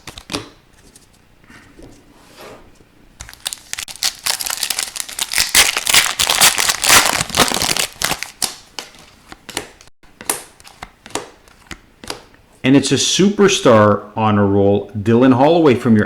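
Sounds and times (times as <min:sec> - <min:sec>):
foil wrapper crinkling: 0:03.2 - 0:09.2.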